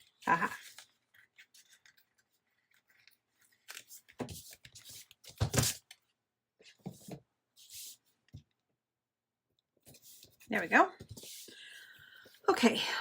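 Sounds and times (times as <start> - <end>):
paper and sticker sheets rustling: 0.0 - 6.0, 9.8 - 12.5.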